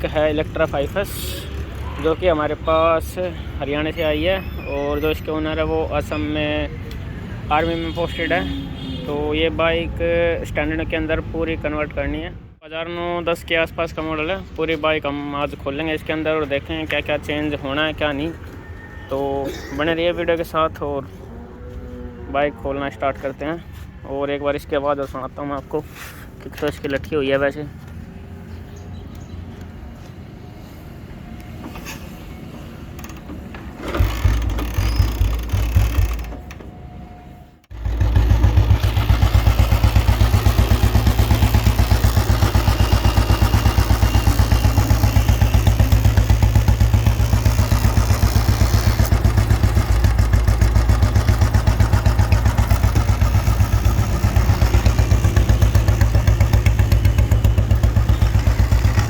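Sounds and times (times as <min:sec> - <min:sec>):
motorcycle engine starting and idling: 0:32.9 - 0:36.8, 0:37.7 - 0:59.0.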